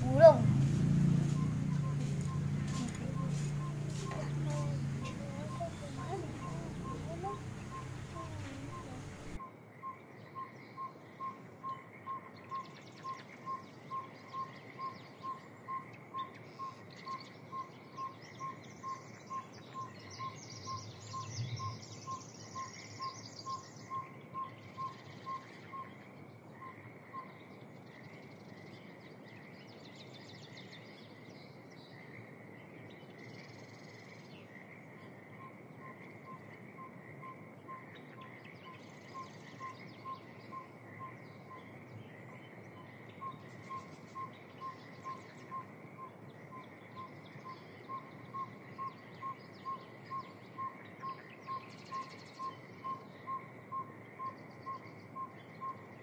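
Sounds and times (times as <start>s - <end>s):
faint birds chirping: 0.0s - 56.0s.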